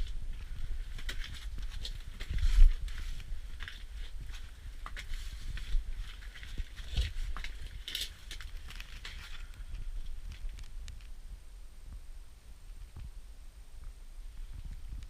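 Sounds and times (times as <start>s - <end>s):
footsteps: 0.0s - 10.7s.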